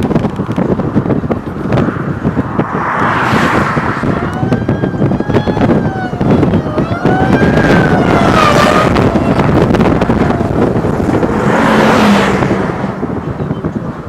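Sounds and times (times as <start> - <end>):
strong wind on microphone: 0.0 - 14.0
siren wailing: 4.0 - 11.0.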